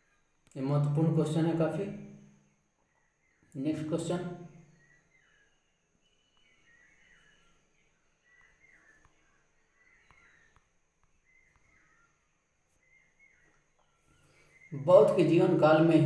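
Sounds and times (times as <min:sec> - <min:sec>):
faint bird chirps: 0:00.0 - 0:16.0.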